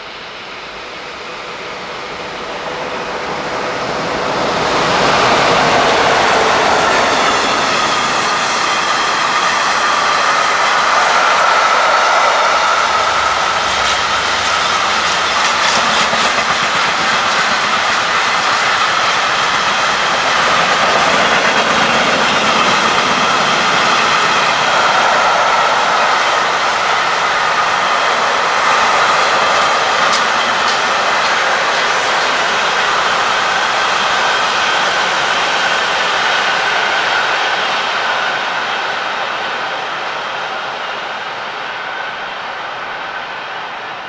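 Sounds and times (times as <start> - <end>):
freight wagons rolling on rails: 13.2 - 22.8, 29.3 - 32.7.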